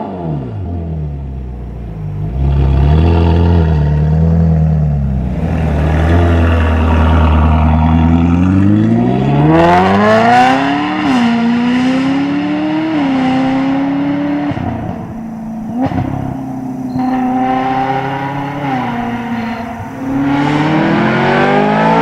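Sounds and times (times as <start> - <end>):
sports car engine revving hard: 2.0 - 22.0.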